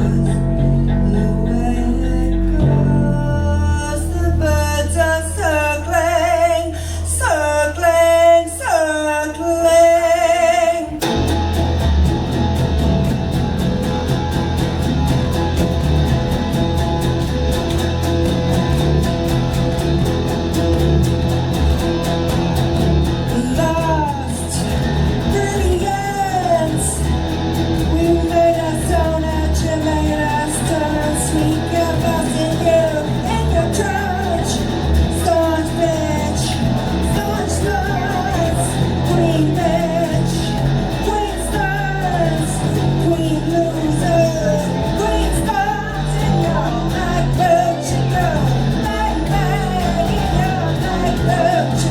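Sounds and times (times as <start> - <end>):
person singing: 0.0 - 11.4, 23.1 - 51.9
live rock band playing: 11.0 - 51.9.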